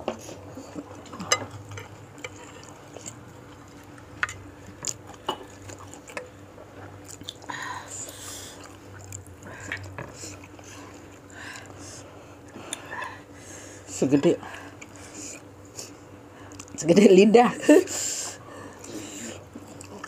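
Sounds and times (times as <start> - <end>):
person chewing: 0.5 - 11.8, 18.8 - 20.0.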